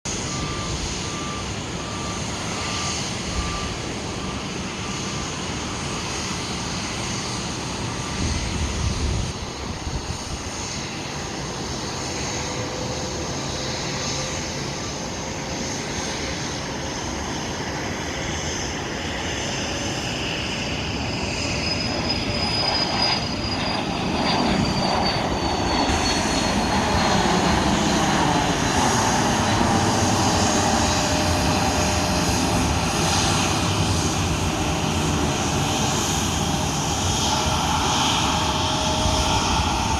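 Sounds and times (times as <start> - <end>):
jet engines taking off: 0.1 - 39.9
high whistle sliding down: 21.0 - 28.2, 36.2 - 39.9.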